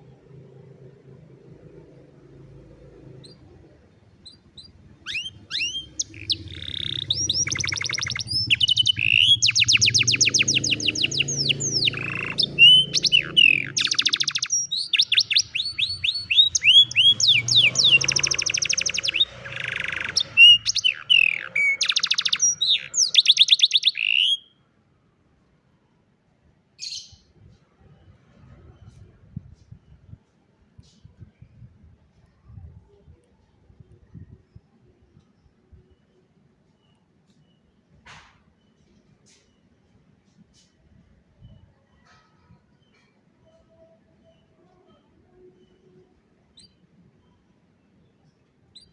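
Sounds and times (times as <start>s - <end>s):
canary singing trills: 0.8s - 24.6s, 48.1s - 48.9s.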